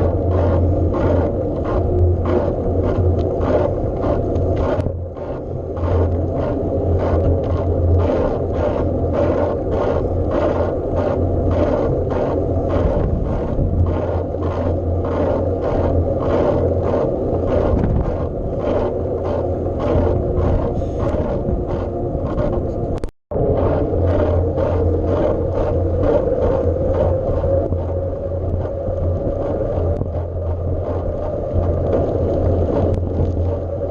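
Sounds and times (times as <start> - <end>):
bike riding rumble: 0.0 - 33.9.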